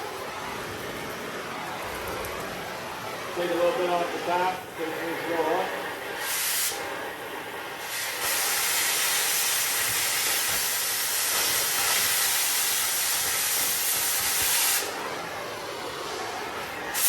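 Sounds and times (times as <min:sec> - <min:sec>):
cutting torch hissing: 0:00.0 - 0:17.0.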